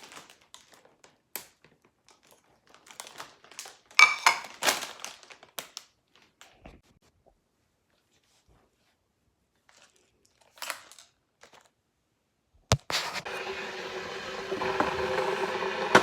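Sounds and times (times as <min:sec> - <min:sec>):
snack packaging crinkling: 0:00.0 - 0:06.6, 0:09.6 - 0:11.8.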